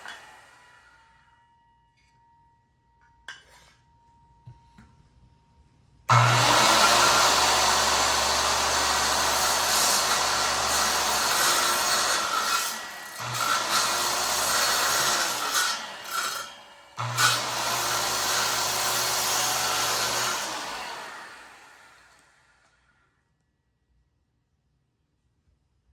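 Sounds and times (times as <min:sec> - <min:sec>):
circular saw cutting wood: 0:00.0 - 0:01.4, 0:06.1 - 0:22.8.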